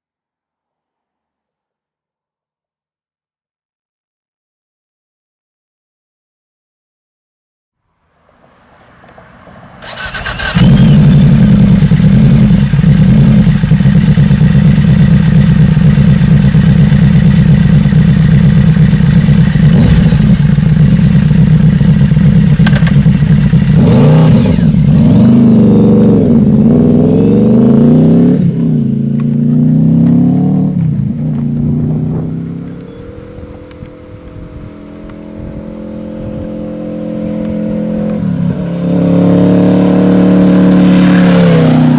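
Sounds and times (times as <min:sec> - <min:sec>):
motorcycle engine revving: 0:08.5 - 0:41.9.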